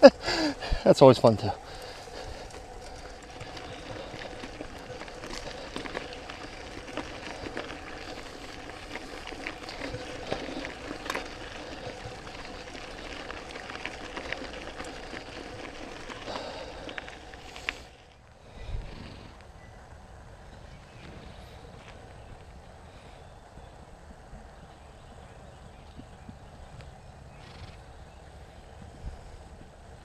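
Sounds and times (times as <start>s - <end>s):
bike clicking and rattling: 0.0s - 19.4s
bike tyres rolling on dirt: 0.0s - 30.0s.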